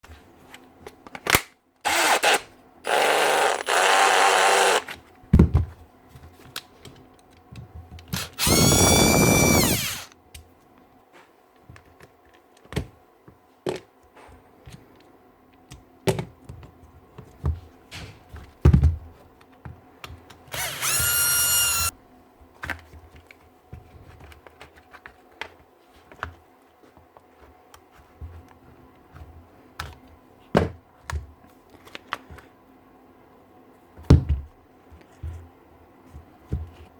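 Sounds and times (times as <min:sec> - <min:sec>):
cordless drill motor whining: 0:01.9 - 0:04.9, 0:08.2 - 0:10.1, 0:20.5 - 0:21.9.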